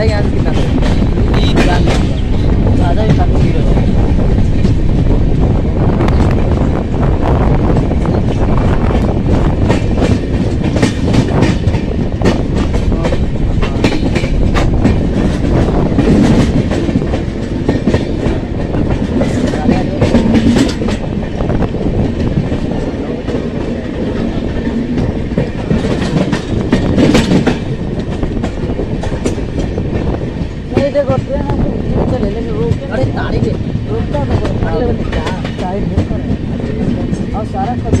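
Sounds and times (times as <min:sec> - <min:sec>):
train wheel rumble: 0:00.0 - 0:38.0
wheels clattering over rail joints: 0:07.7 - 0:38.0.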